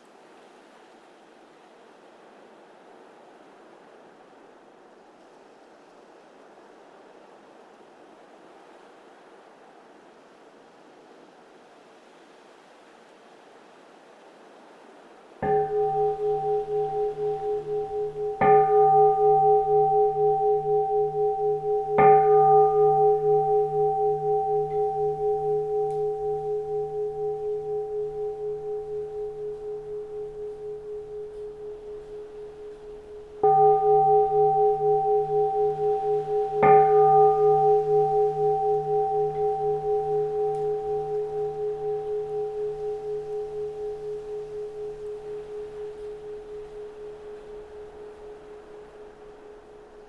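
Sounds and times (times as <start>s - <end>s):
bowl bell ringing: 15.4s - 50.0s.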